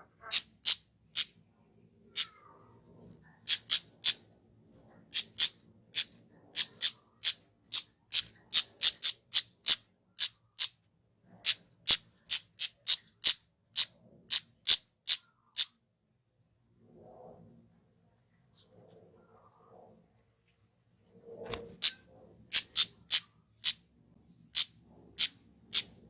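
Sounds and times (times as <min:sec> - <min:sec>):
bird high-pitched call notes: 0:00.2 - 0:01.3, 0:03.5 - 0:04.2, 0:05.2 - 0:10.7, 0:21.8 - 0:23.8, 0:24.6 - 0:26.0.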